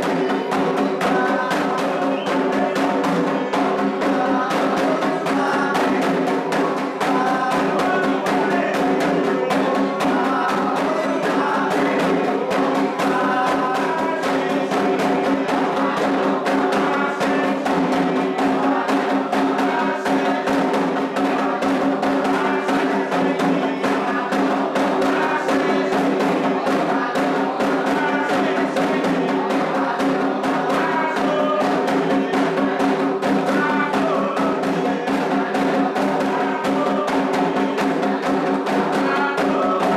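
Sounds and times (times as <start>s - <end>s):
group singing a chant: 0.0s - 39.9s
hand drums playing: 0.0s - 39.9s.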